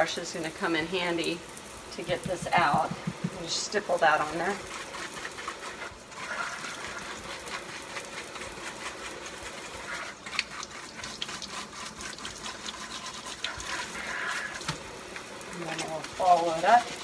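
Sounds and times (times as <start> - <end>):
tap running into a sink: 2.0 - 3.6
scrub brush and dishes knocking: 2.0 - 4.6.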